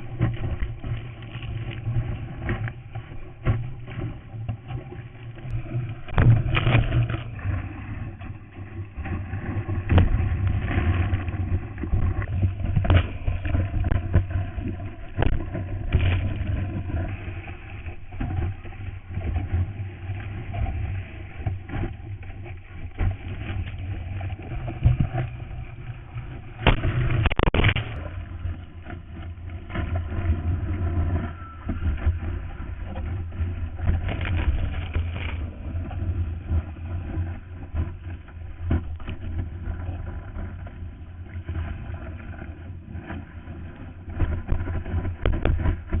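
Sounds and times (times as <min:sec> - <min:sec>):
muffled wind and seawater: 0:00.0 - 0:46.0.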